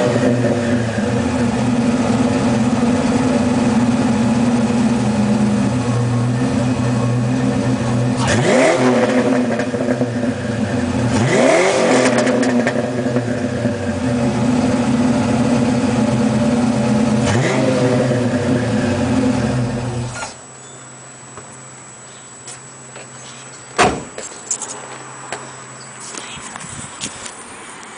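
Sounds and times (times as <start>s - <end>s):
car engine idling and revving: 0.0s - 27.9s.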